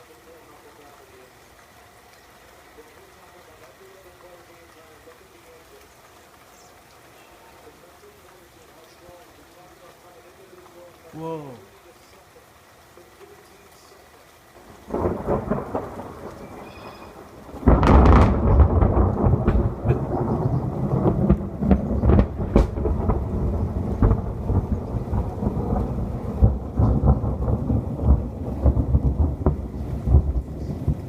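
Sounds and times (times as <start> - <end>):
steady rain: 0.0 - 31.0
thunder rumbling and cracking: 14.6 - 31.0.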